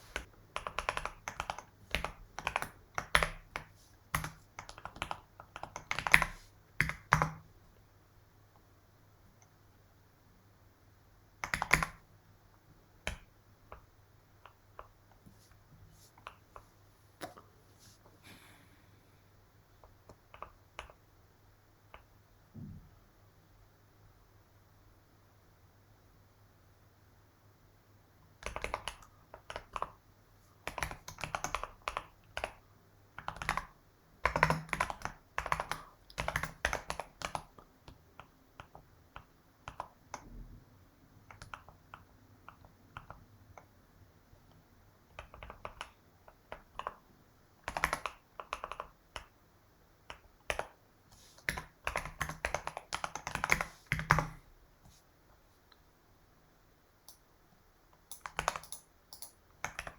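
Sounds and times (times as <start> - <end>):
typing on keyboard: 0.1 - 7.5, 11.4 - 12.1, 13.0 - 15.3, 19.8 - 21.0, 28.4 - 30.0, 30.6 - 40.3, 41.2 - 43.7, 45.1 - 47.0, 47.6 - 49.4, 50.0 - 50.8, 51.4 - 54.4, 58.0 - 59.9.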